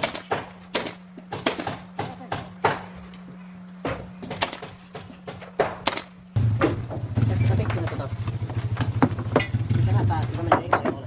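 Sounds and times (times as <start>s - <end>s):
steady low hum: 0.0s - 11.0s
wood knocks and thuds: 3.8s - 9.5s.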